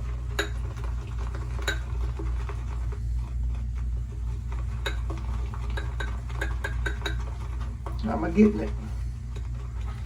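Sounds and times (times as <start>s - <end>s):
shaving brush swirling lather: 0.0s - 10.0s
steady low hum: 0.0s - 10.0s
brush clinking against bowl: 1.6s - 2.0s, 4.8s - 8.6s.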